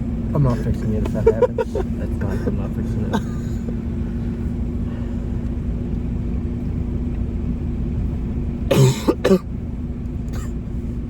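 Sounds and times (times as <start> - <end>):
car idling hum: 0.0 - 11.0
person coughing hard: 3.1 - 3.7, 8.7 - 9.5, 10.4 - 10.6.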